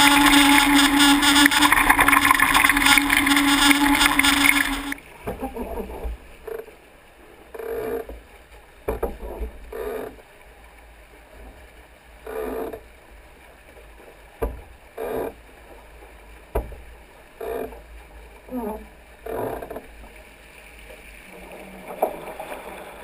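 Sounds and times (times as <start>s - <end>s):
water slapping against boat hulls: 7.5s - 10.3s, 12.4s - 20.2s.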